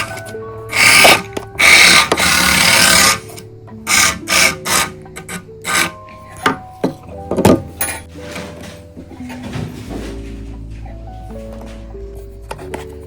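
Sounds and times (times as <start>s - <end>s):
background music with held notes: 0.0s - 13.0s
toy car tyres scraping: 0.7s - 6.0s.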